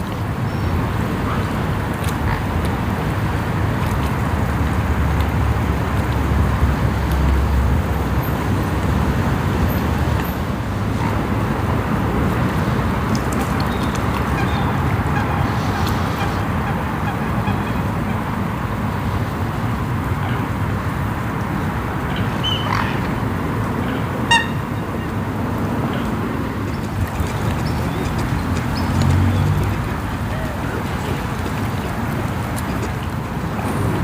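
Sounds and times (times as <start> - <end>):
steady rumbling noise: 0.0 - 34.0
waterfowl calling: 12.6 - 18.3, 22.0 - 25.1, 25.8 - 33.9.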